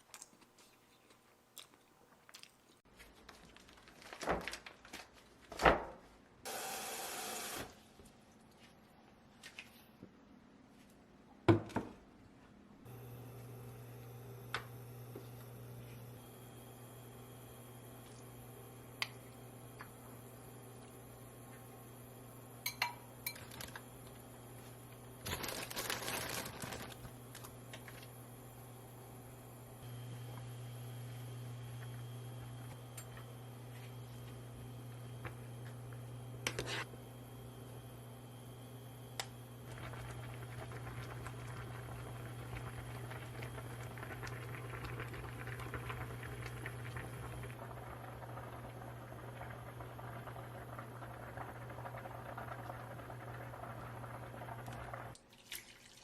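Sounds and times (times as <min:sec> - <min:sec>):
food sizzling on a stovetop: 0:06.5 - 0:07.7
kitchen clicks and clinks: 0:22.6 - 0:23.6
steady low hum: 0:26.7 - 0:55.2.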